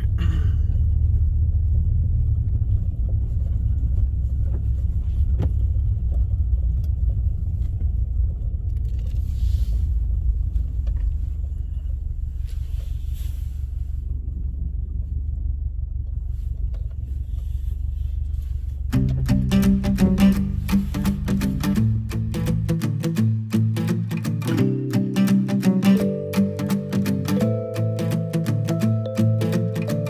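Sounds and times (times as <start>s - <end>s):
vehicle driving rumble: 0.0s - 25.0s
plucked string music: 18.9s - 30.0s.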